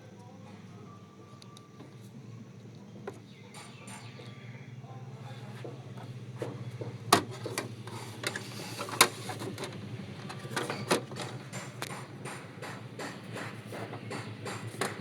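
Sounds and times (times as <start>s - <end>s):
printer mechanical clicks and knocks: 6.4s - 15.0s.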